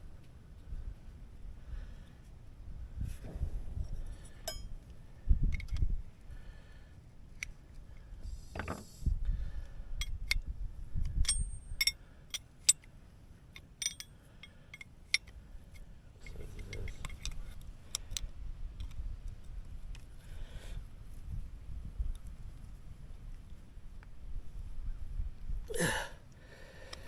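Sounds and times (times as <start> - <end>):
wrench clicking on metal fitting: 13.6 - 14.1.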